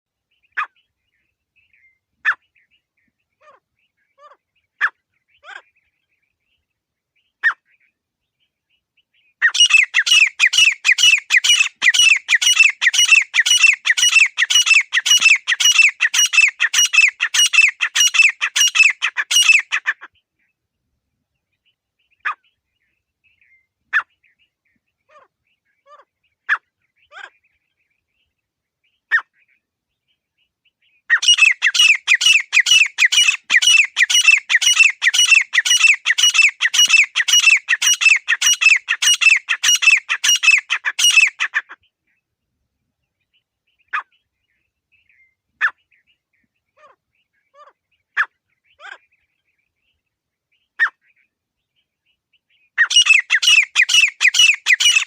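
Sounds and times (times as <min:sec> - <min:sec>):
francolin calling: 0:09.4 - 0:20.0, 0:31.1 - 0:41.7, 0:52.8 - 0:55.0.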